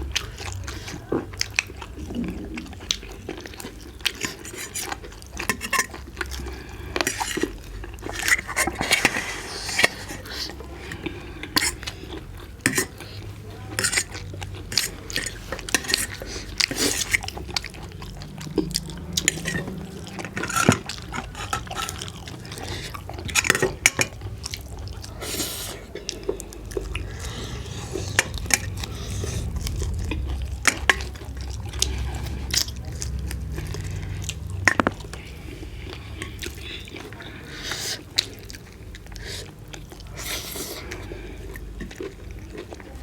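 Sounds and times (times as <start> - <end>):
wet chewing and biting: 0.0 - 43.0
plate and utensils clinking: 20.3 - 22.2.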